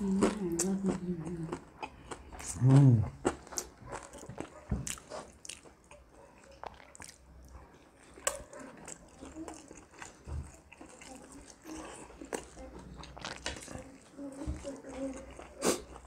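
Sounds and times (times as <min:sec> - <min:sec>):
wet chewing: 0:00.0 - 0:16.0.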